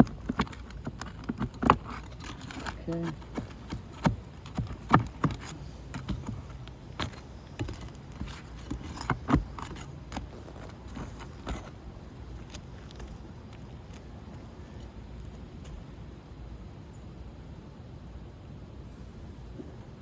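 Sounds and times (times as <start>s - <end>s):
sharp metallic clicks and scrapes: 0.0s - 11.8s
tools prying at roof shingles: 0.0s - 11.8s.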